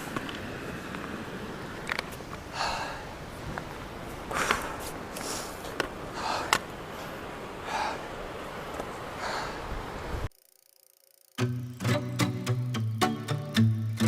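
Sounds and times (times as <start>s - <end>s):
person breathing hard: 2.5s - 3.2s, 4.3s - 8.1s, 9.2s - 9.7s.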